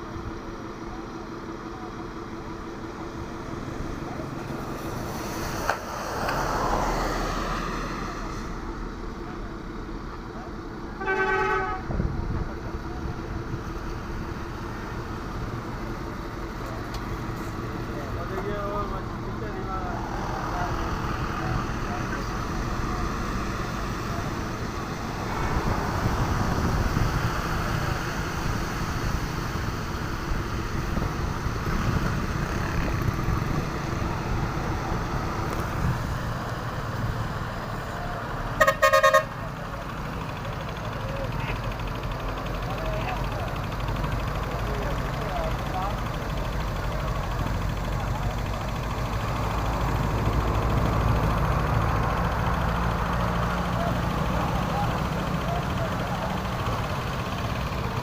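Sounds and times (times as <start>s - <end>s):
traffic noise: 0.0s - 58.0s
truck engine rumbling: 0.0s - 58.0s
horn blast: 11.0s - 11.9s, 38.6s - 39.4s.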